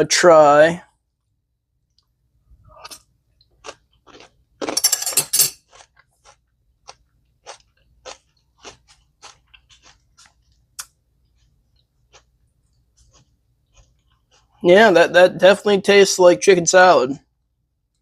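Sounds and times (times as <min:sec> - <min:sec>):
person chewing crunchy food: 0:01.9 - 0:14.6.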